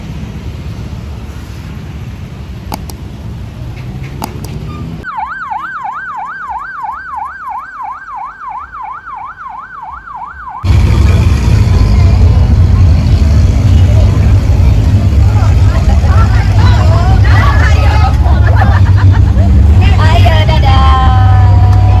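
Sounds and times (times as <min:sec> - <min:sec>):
sharp clicks: 0:02.7 - 0:03.0
electronic siren wailing: 0:05.0 - 0:10.8
bass-heavy sound system music: 0:10.3 - 0:22.0
low rumbling background: 0:10.6 - 0:22.0.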